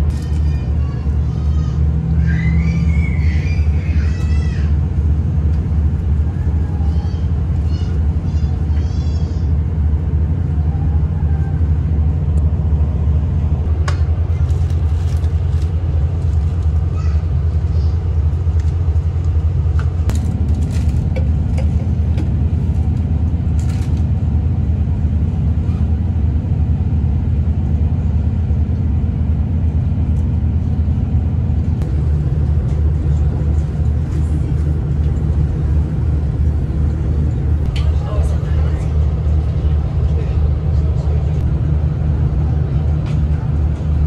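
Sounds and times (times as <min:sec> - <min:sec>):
diesel railcar rumble: 0:00.0 - 0:44.0.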